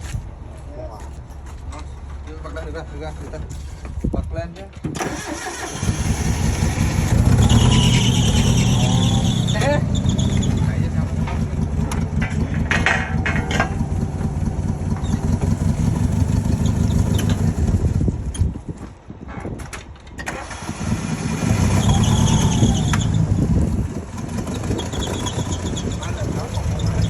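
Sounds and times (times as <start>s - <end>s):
vehicle engine running: 5.8s - 18.6s, 20.5s - 27.0s.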